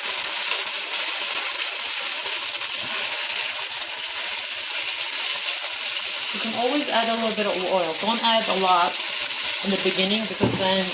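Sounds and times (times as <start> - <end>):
beef sizzling in hot oil: 0.0 - 10.9.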